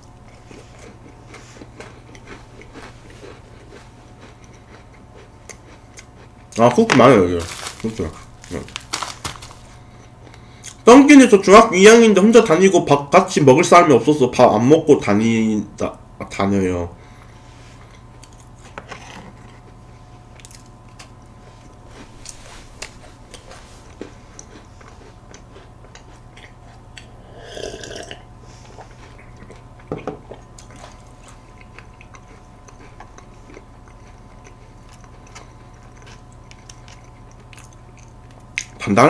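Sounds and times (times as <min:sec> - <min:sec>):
chewing crunchy cookie: 0:00.0 - 0:10.9, 0:17.2 - 0:38.9
drinking from a glass: 0:27.2 - 0:28.2.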